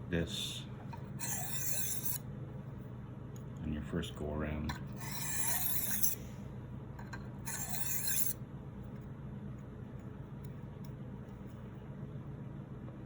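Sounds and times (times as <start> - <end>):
knife scraping on sharpening stone: 1.2 - 2.2, 4.9 - 6.2, 7.5 - 8.4.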